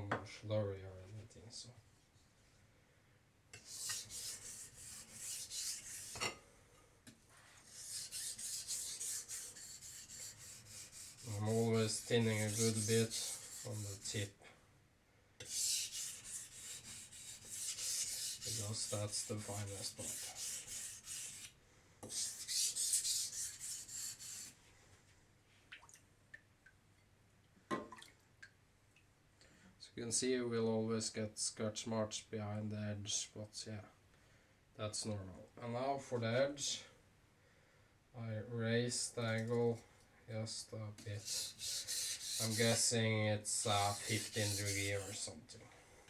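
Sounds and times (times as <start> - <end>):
knife scraping on whetstone: 3.6 - 6.4, 7.6 - 14.2, 15.4 - 21.5, 22.1 - 24.5, 41.2 - 42.8, 43.6 - 45.3.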